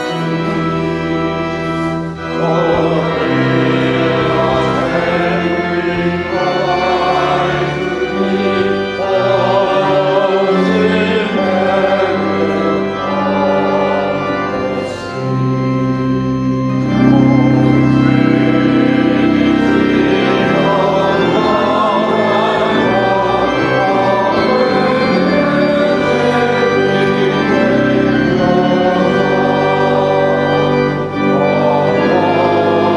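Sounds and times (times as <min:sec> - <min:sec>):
church organ playing chords: 0:00.0 - 0:32.9.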